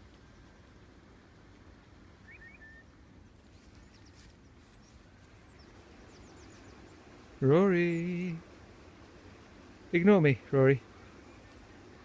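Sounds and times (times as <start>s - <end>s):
faint bird chirps: 2.2s - 7.1s, 10.8s - 12.0s.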